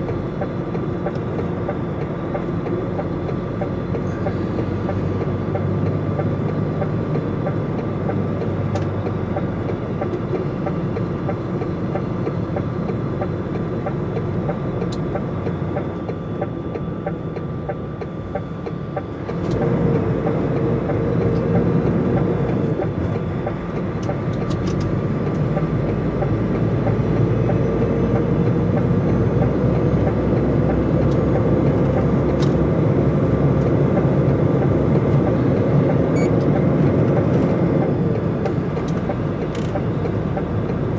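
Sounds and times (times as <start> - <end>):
truck engine and road noise: 0.0 - 40.9.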